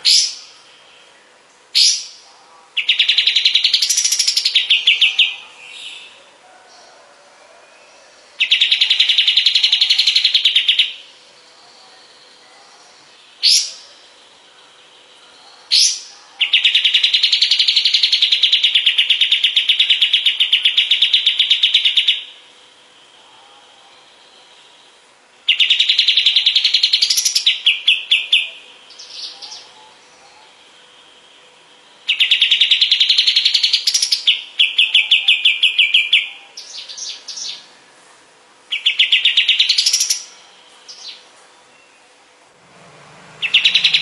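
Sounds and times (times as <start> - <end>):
bird sharp rising notes: 42.6 - 44.0
songbird rattling trills: 43.4 - 44.0.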